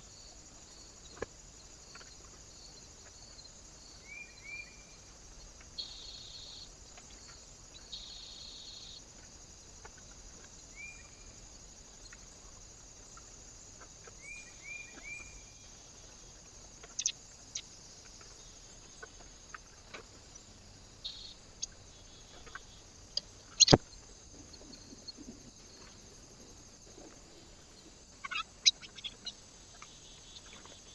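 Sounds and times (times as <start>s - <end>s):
steady high hiss: 0.0s - 30.9s
small birds chirping: 0.7s - 30.9s
buzzy bird calls: 16.8s - 17.6s, 21.0s - 24.0s, 26.5s - 30.9s.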